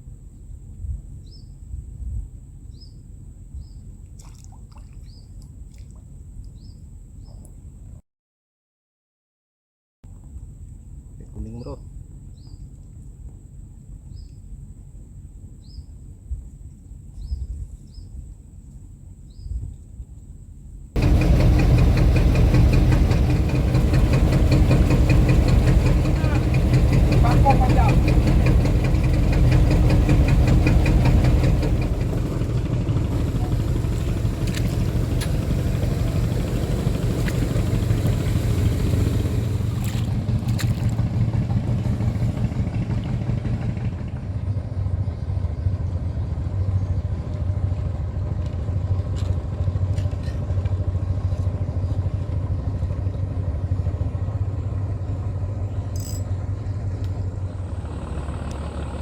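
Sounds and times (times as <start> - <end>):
small boat engine running: 21.0 - 59.0.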